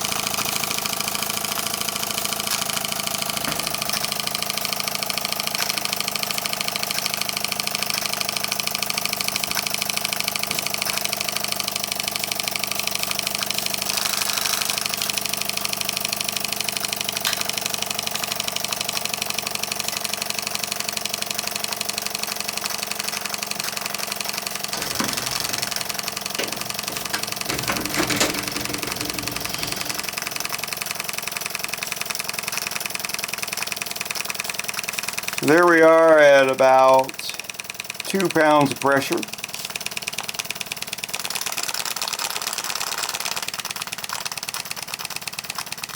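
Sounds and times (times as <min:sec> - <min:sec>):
model steam engine beating: 0:24.7 - 0:31.0.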